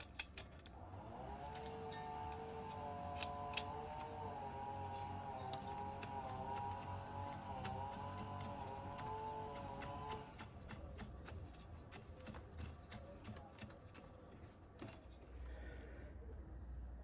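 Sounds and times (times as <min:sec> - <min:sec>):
metallic clicks and knocks of tools: 0:00.0 - 0:00.8.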